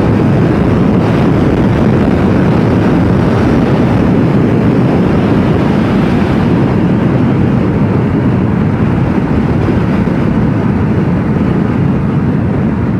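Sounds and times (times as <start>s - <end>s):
motorcycle engine running: 0.0s - 12.9s
wind rush over microphone: 0.0s - 12.9s.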